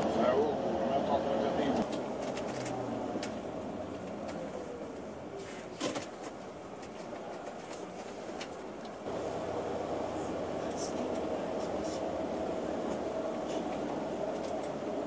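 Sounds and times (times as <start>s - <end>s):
coach engine and road noise: 0.0s - 15.0s.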